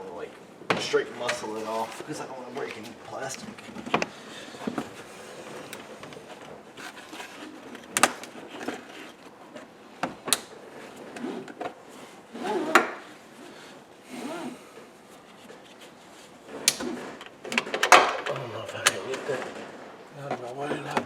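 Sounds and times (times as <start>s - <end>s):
plastic trim rustling and handling: 0.8s - 9.7s.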